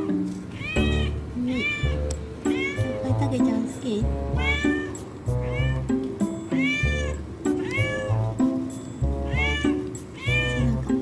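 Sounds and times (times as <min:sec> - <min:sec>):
background music: 0:00.0 - 0:11.0
cat meowing: 0:00.5 - 0:03.2, 0:04.0 - 0:08.4, 0:09.2 - 0:10.9.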